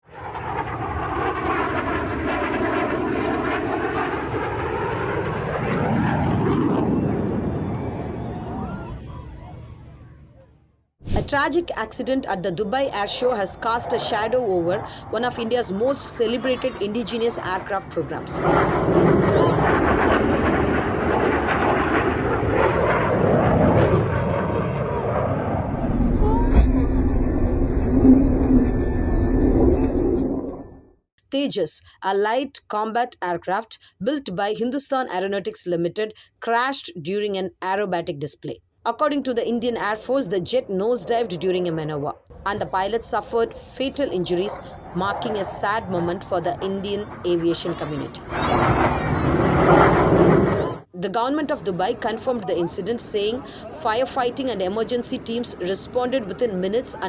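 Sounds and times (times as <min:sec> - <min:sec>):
jet engine roar: 0:00.0 - 0:30.9, 0:42.3 - 0:57.0.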